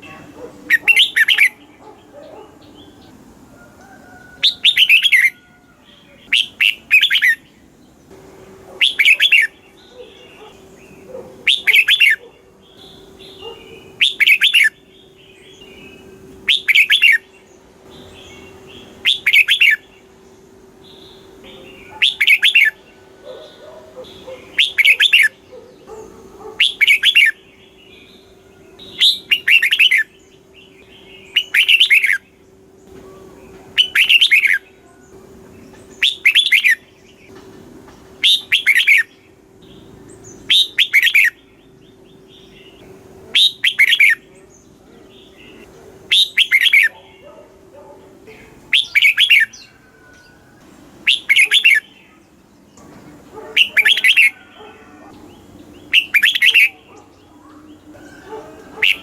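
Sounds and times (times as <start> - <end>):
bird singing lilting phrases: 0.0 - 59.0
soft bird chirps: 38.2 - 59.0.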